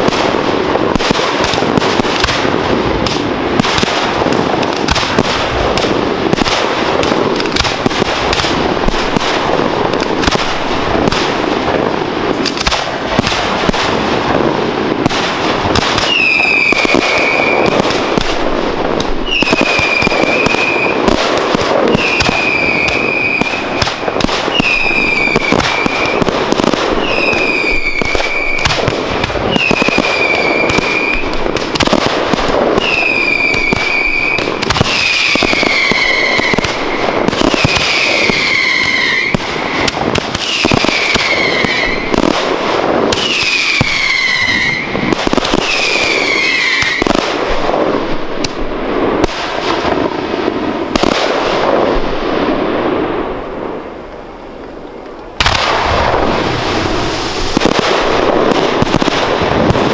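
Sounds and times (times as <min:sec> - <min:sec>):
shells bursting with bangs: 0:00.0 - 0:54.7, 0:55.3 - 0:59.9
fireworks crackling: 0:00.0 - 0:59.9
firework whistles: 0:15.0 - 0:47.2, 0:55.4 - 0:59.2.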